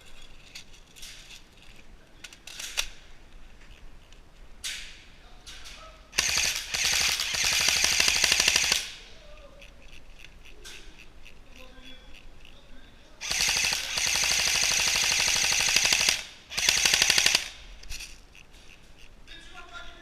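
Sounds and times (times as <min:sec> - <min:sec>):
airsoft gun full-auto burst: 0:06.2 - 0:09.1, 0:13.2 - 0:17.7.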